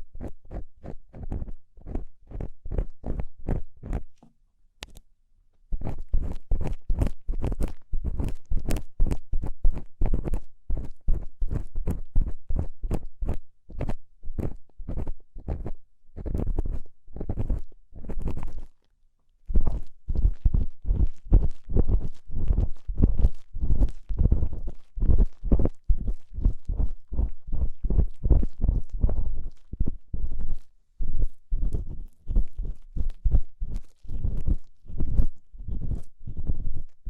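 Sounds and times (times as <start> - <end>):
ear-cleaning tool scraping: 21.4 - 37.0.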